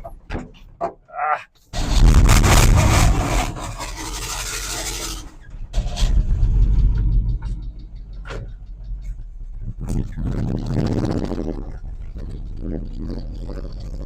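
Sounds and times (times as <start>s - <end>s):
truck engine revving: 1.8s - 14.0s.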